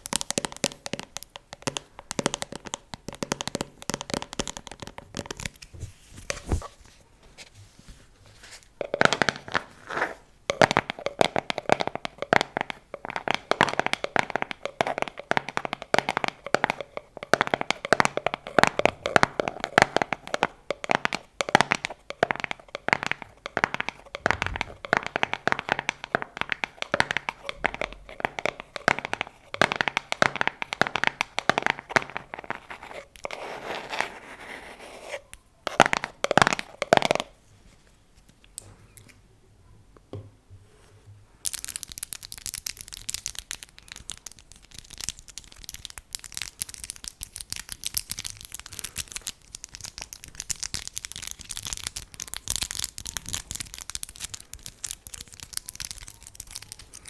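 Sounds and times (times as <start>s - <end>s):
tapping on objects: 8.8s - 9.7s, 10.5s - 33.0s, 35.7s - 37.3s
crinkly scratching: 21.9s - 36.8s, 41.6s - 57.0s.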